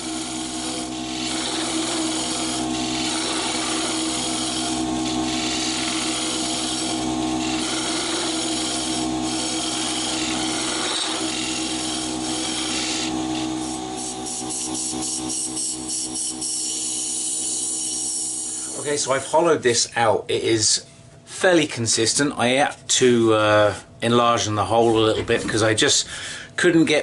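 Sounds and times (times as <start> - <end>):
hollowing tool scraping wood: 0.0 - 19.0
wood lathe motor hum: 0.0 - 19.4.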